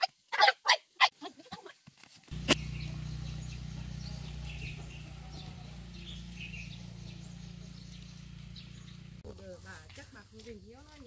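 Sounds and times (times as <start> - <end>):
bird chirps: 2.3 - 9.2.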